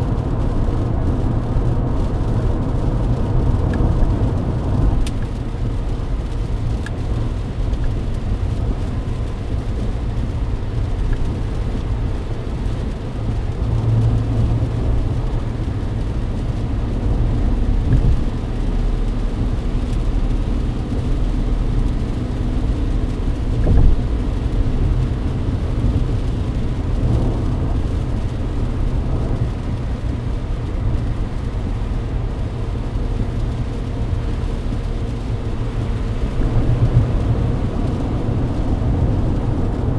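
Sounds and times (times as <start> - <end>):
road rumble and tyre noise: 0.0 - 39.9.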